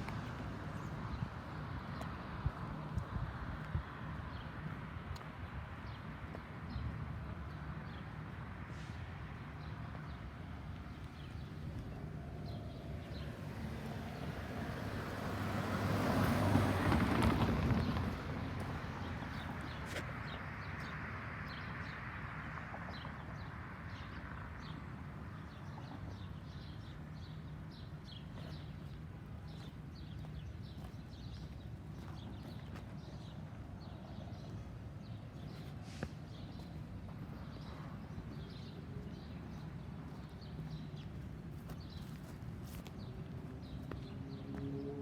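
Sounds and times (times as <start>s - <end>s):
low traffic hum: 0.0s - 45.0s
road vehicle passing by: 7.8s - 45.0s
small birds chirping: 25.4s - 44.8s.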